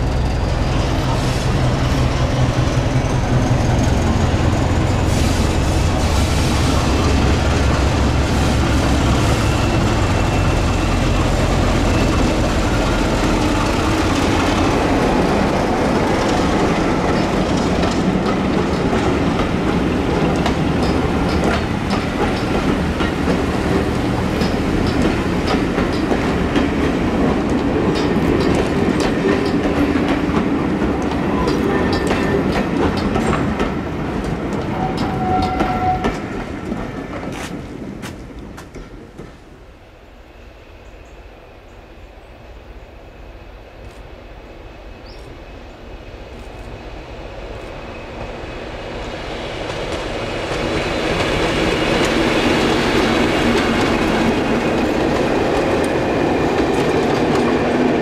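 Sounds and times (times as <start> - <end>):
locomotive engine hum: 0.0 - 40.2, 42.0 - 58.0
train wheels clacking over joints: 8.6 - 39.4, 49.6 - 58.0.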